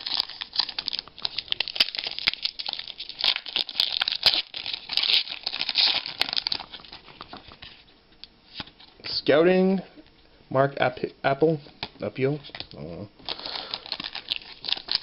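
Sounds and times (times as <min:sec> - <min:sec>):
foil wrapper crinkling and tearing: 0:00.0 - 0:07.8, 0:12.4 - 0:15.0.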